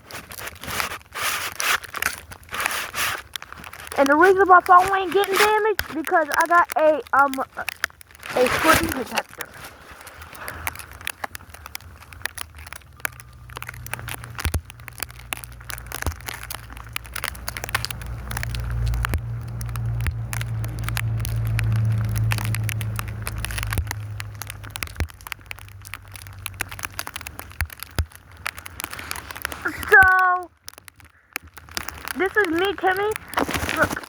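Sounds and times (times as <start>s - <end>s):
snow crackling on microphone: 0.0s - 34.0s
vehicle engine passing: 17.0s - 24.9s.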